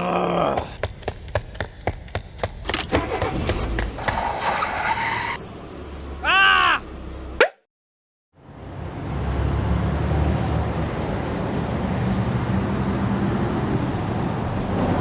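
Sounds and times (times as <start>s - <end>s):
rushing car-like noise: 2.6s - 7.4s.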